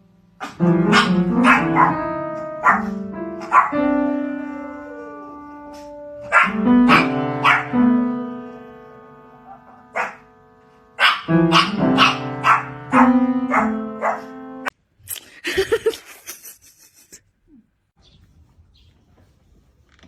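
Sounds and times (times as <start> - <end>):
dog barking: 0.4 - 4.0, 5.8 - 7.8, 9.3 - 10.3, 10.9 - 14.4.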